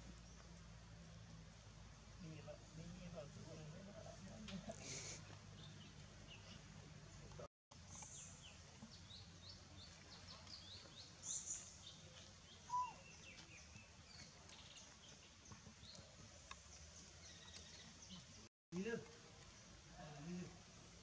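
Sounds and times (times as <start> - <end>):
small birds chirping: 2.2 - 18.5.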